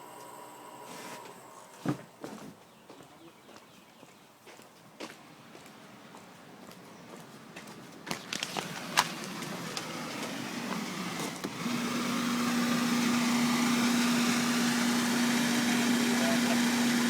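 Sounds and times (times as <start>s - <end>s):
bubble generator motor humming: 0.0s - 1.7s, 8.8s - 17.0s.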